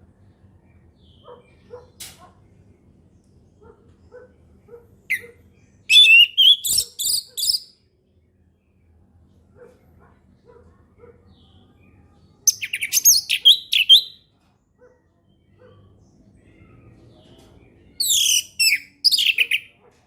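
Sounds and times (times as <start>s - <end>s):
thrush singing whistled notes: 5.9s - 7.7s, 18.0s - 19.7s.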